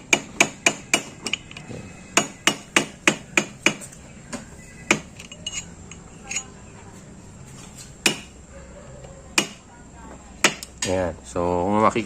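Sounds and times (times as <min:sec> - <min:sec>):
small hammer tapping metal: 0:00.0 - 0:01.6, 0:02.2 - 0:04.0, 0:08.0 - 0:08.3, 0:09.4 - 0:09.6.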